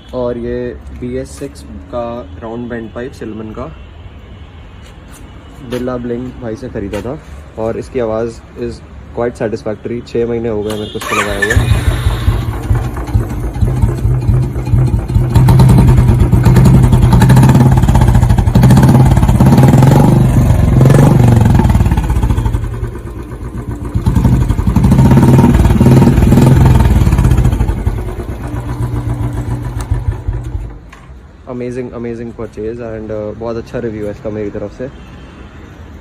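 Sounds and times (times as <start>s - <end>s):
motorcycle engine revving: 11.0s - 30.8s.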